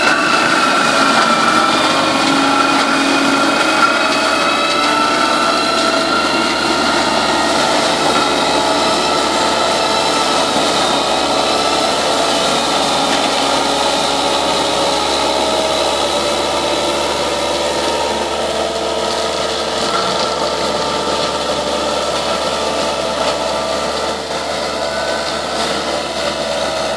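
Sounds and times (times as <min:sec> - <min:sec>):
diesel engine running: 0:00.0 - 0:26.9
mulcher head spinning with whine: 0:00.0 - 0:26.9.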